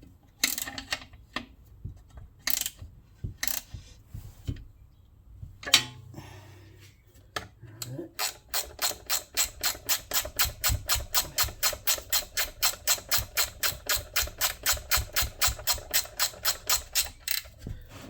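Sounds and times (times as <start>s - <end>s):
ratchet wrench clicking: 8.2s - 17.5s.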